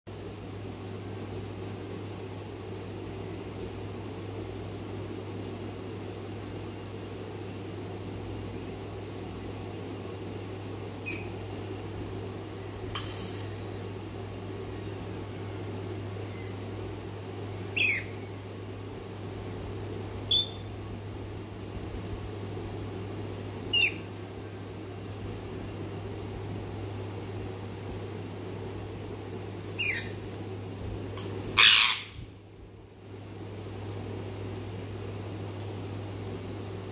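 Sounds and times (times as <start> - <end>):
low background hum: 0.1 - 36.9
parrot shrill calls: 11.0 - 11.3, 13.0 - 13.6, 17.8 - 18.2, 20.3 - 20.6, 23.7 - 24.1, 29.8 - 30.2, 31.2 - 32.2.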